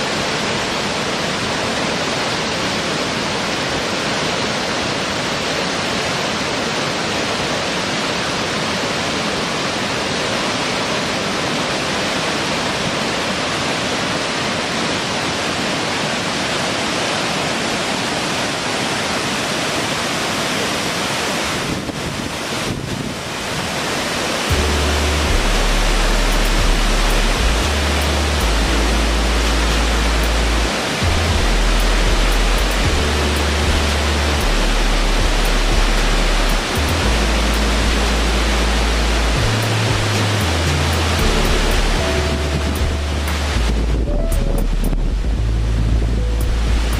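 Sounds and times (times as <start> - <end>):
water falling: 0.0 - 46.9
ambient music bass notes: 24.5 - 46.9.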